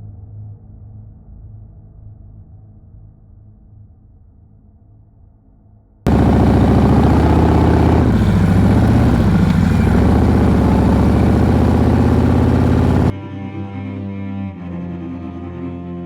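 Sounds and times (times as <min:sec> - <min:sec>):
motorcycle engine running: 0:06.1 - 0:13.1.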